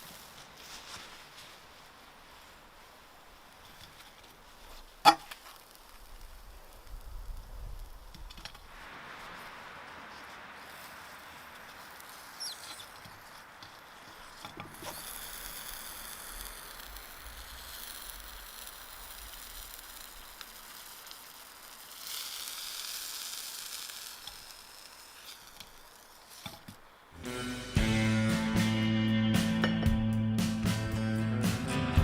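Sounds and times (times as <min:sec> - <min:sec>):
chicken wings sizzling on a grill: 0:04.6 - 0:09.4, 0:14.0 - 0:26.6.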